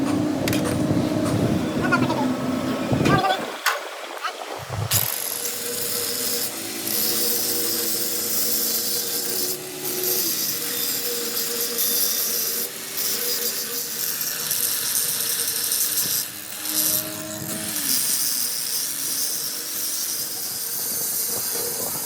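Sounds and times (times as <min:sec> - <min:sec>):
power tool grinding metal: 0:00.4 - 0:22.0.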